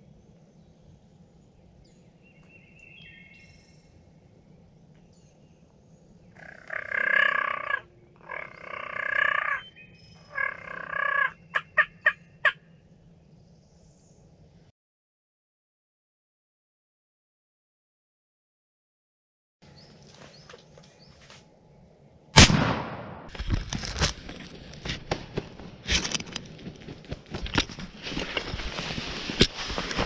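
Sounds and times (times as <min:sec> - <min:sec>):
turkey gobbling: 0:10.3 - 0:12.6.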